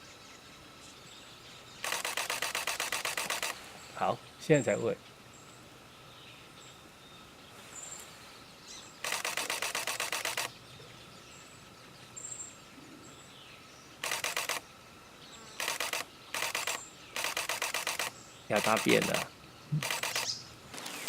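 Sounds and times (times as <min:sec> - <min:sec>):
camera shutter bursts: 0:01.8 - 0:03.6, 0:09.0 - 0:10.5, 0:14.0 - 0:14.6, 0:15.6 - 0:21.0
faint high bird chirps: 0:18.0 - 0:20.5.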